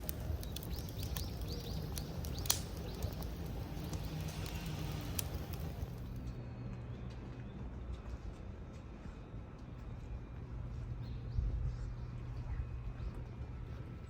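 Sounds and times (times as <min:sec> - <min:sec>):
bird chirping: 0:00.0 - 0:06.0
sharp clicks: 0:00.0 - 0:06.1
steady low rumble: 0:00.0 - 0:06.4.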